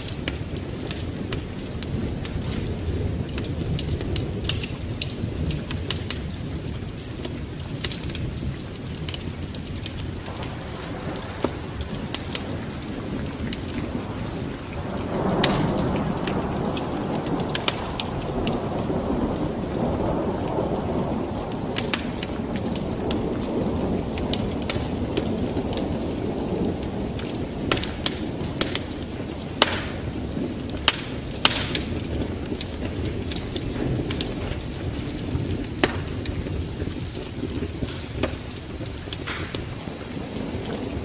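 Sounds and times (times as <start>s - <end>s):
wood fire crackling: 0.0s - 41.0s
sharp pops: 15.3s - 16.4s, 29.6s - 30.2s, 30.9s - 32.0s, 35.8s - 36.2s.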